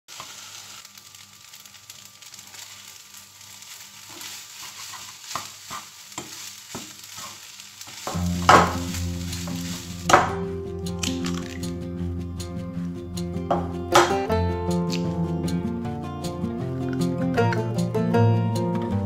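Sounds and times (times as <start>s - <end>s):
fried rice sizzling in a pan: 0.0s - 11.6s
utensil scraping and tapping pan: 4.1s - 10.4s
music with loud hit: 8.2s - 15.3s.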